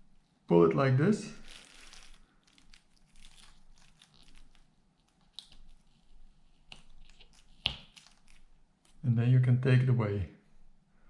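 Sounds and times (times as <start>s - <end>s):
adhesive crackling as peeled: 1.4s - 9.0s.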